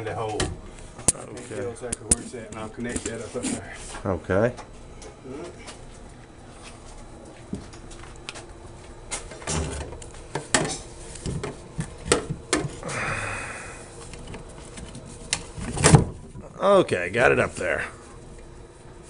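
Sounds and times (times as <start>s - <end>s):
pipe scraping: 2.2s - 4.0s.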